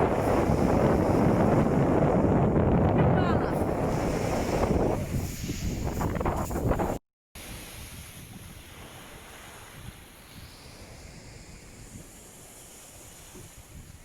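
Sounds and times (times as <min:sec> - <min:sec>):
wind rushing: 0:00.0 - 0:07.0
sea waves: 0:00.0 - 0:14.0
wind buffeting microphone: 0:00.0 - 0:14.0.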